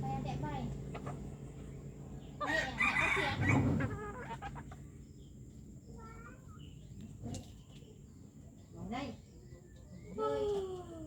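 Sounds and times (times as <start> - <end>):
junglefowl clucking: 2.4 - 4.9.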